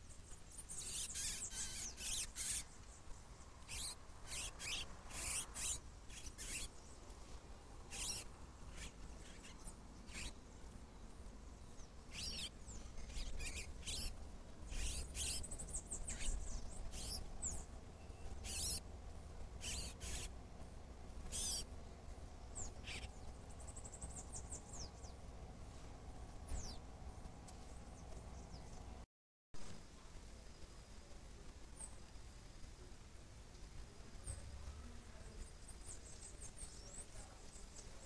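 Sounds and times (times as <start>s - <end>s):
high thin bird calls: 0.6s - 2.8s, 3.7s - 6.8s, 7.9s - 10.4s, 12.1s - 18.8s, 19.6s - 20.3s, 21.3s - 21.7s.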